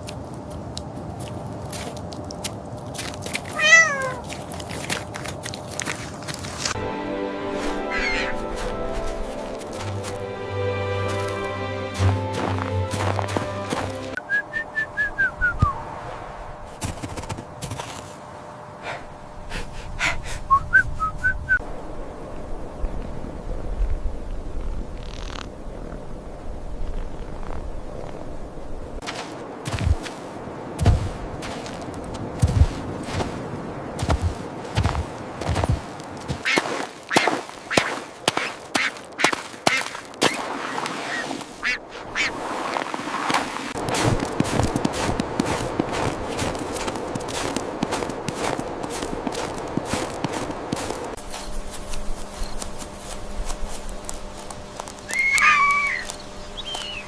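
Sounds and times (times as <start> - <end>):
whistled notes: 7.4 - 15.8, 20.5 - 21.6, 55.1 - 57.0
short quacking calls: 7.8 - 8.5, 41.1 - 42.4, 55.1 - 56.1.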